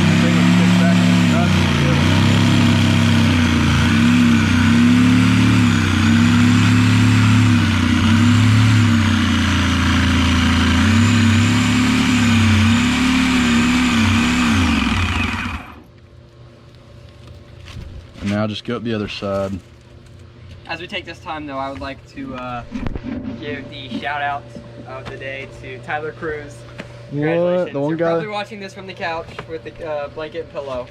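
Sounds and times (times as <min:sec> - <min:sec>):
power saw cutting fiberglass: 0:00.0 - 0:15.8.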